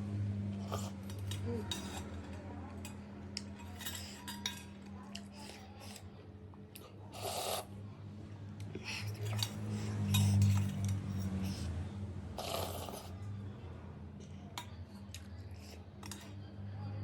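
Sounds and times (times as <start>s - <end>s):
utensils clinking against bowl: 0.6s - 6.0s, 9.0s - 11.7s, 14.5s - 16.5s
person slurping soup: 7.1s - 7.8s, 12.4s - 13.2s.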